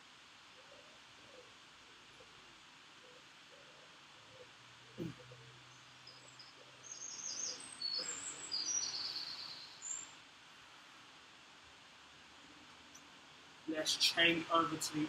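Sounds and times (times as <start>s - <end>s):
birds chirping and trilling: 5.0s - 10.1s.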